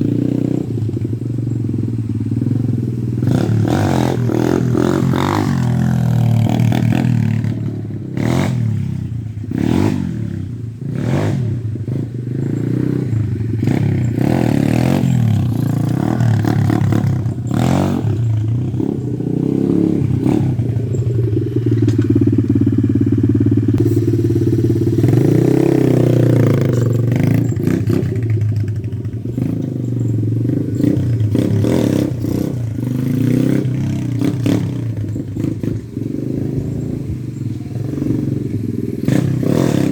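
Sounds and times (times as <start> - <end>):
pit bike engine revving: 0.0 - 39.9.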